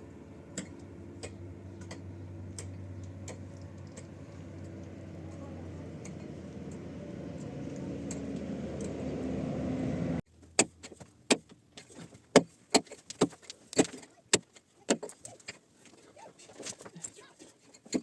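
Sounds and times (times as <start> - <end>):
low motor rumble: 0.0 - 10.2.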